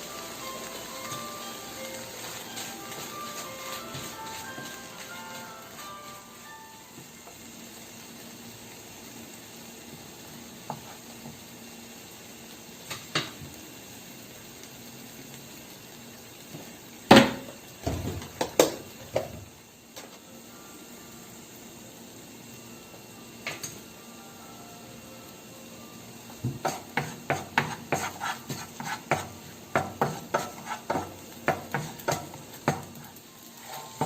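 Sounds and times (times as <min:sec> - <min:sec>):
utensils and dishes clinking: 0:33.6 - 0:34.0.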